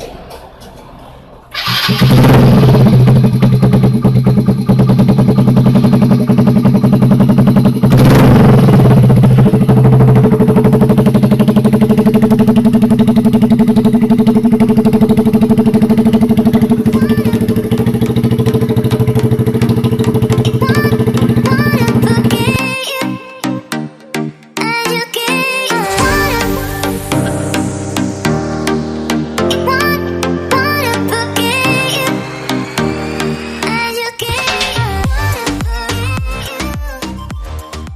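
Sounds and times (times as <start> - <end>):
small motorcycle engine running: 1.6 - 22.7.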